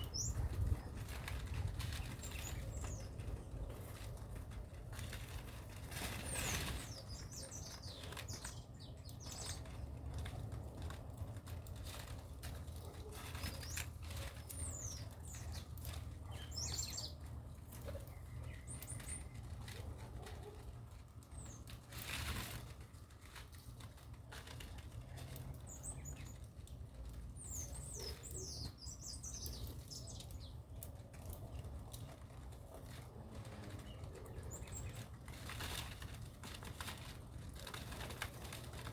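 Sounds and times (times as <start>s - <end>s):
rustling bursts: 0.0s - 27.1s
small birds chirping: 0.0s - 38.9s.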